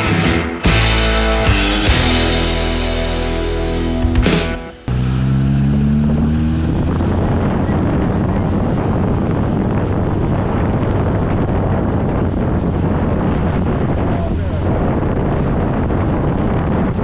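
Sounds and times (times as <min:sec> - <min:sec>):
car engine running: 0:00.0 - 0:08.1
wind buffeting microphone: 0:06.7 - 0:17.0.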